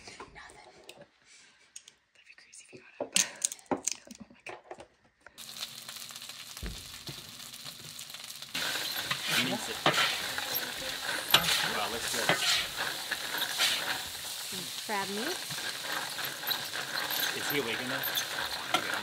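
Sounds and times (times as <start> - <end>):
food sizzling in hot oil: 5.4 - 19.0.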